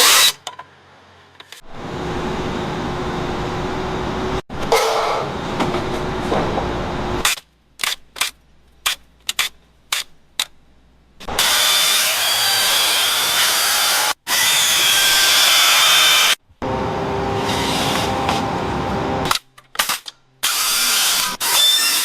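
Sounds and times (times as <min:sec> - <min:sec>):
power tool whirring: 0:20.4 - 0:22.0.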